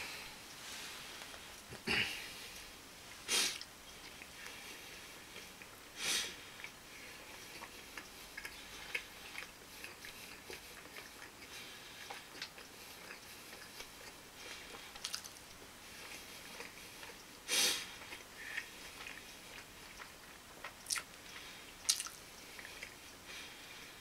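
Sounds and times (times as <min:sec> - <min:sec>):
person chewing food: 0:00.0 - 0:24.0
loud breaths through the nose: 0:04.4 - 0:07.4, 0:16.1 - 0:19.5, 0:22.5 - 0:24.0
soft mouth clicks: 0:21.9 - 0:22.2.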